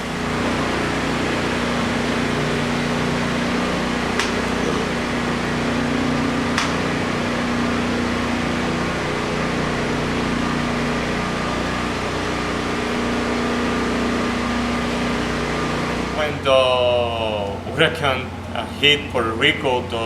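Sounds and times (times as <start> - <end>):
machine hum: 0.0 - 20.0
sharp click: 4.2 - 4.4, 6.6 - 6.8.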